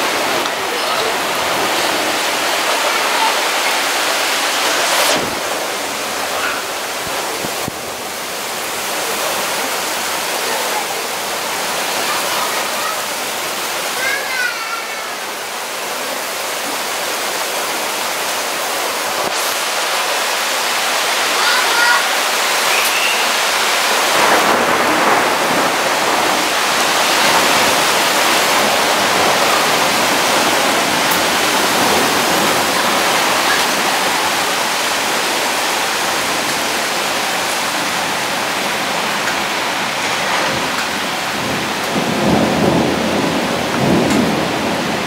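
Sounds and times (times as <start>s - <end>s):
thunder rumbling: 0.0s - 12.8s, 22.7s - 45.0s
heavy rain pouring: 0.0s - 45.0s.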